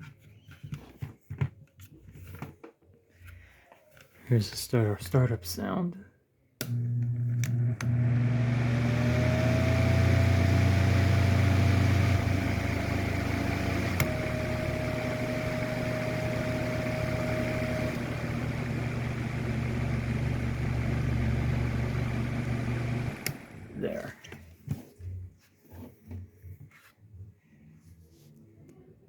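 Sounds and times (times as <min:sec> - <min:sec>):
electric fan motor humming: 0:06.6 - 0:23.9
fan click: 0:13.6 - 0:15.1.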